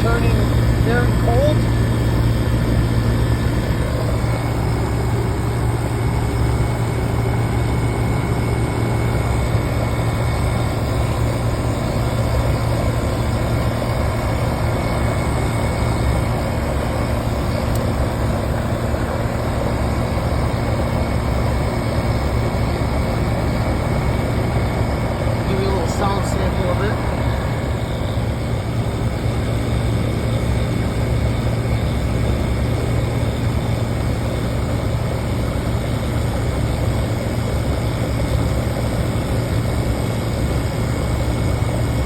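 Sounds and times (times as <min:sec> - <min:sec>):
compressor humming: 0:00.0 - 0:34.5
condenser fan rushing: 0:00.0 - 0:42.0.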